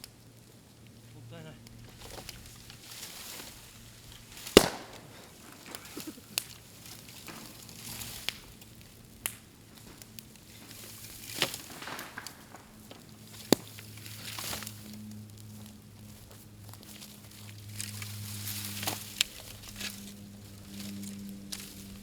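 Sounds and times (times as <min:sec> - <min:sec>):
sharp pops of bursting stems: 0:00.0 - 0:14.8
bamboo crackling in a bonfire: 0:00.0 - 0:22.0.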